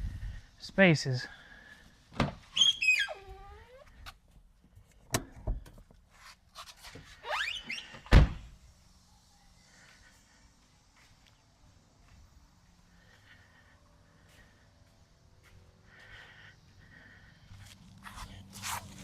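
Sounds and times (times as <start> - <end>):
high gliding squeaks: 2.5 - 3.8, 7.2 - 8.0.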